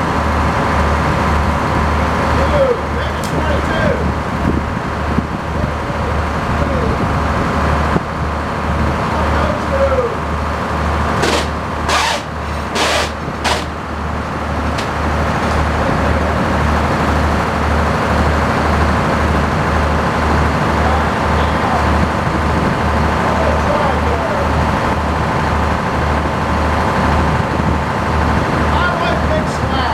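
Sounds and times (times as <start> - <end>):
tractor engine throbbing: 7.2 - 23.7
short hissing bursts: 11.2 - 13.8.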